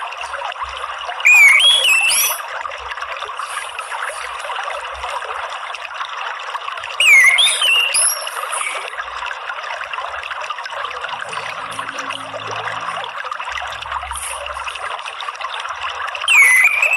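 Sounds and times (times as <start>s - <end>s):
water trickling: 0.0s - 16.9s
whistled birdsong: 1.2s - 2.4s, 7.0s - 8.9s, 16.2s - 16.9s.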